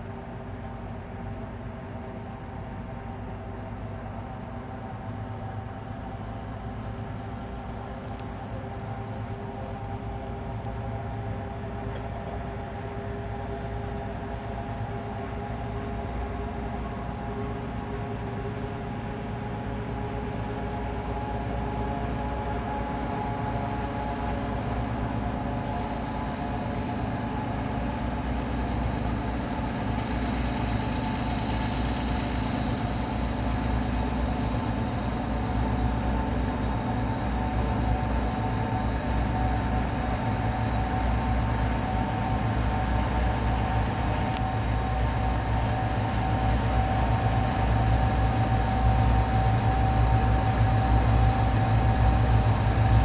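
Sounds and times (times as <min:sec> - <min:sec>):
train rumbling with high whine: 0:00.0 - 0:53.0.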